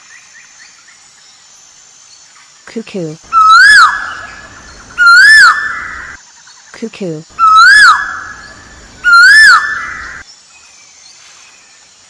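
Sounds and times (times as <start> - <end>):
cuckoo call: 3.3 - 4.4, 9.0 - 10.2.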